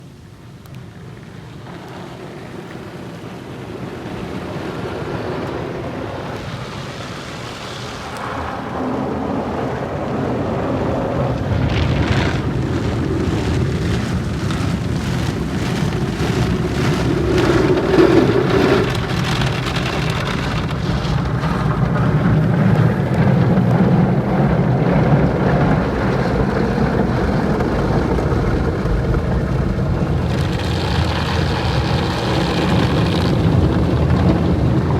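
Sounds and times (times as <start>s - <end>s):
car wash machinery running: 0.9s - 34.9s
water spraying against car: 10.8s - 34.9s.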